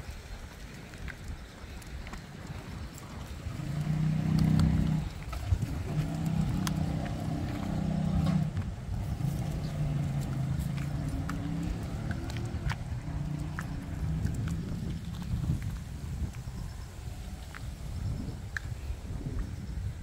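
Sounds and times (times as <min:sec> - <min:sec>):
footsteps on paving: 0:00.0 - 0:20.0
vehicle engine humming: 0:02.3 - 0:18.1.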